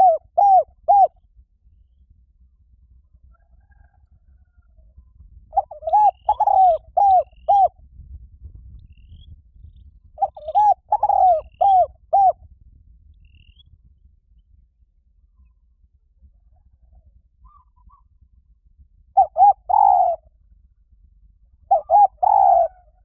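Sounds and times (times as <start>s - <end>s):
dove cooing: 0.0s - 1.2s, 5.5s - 7.8s, 10.2s - 12.4s, 19.2s - 20.3s, 21.6s - 23.0s.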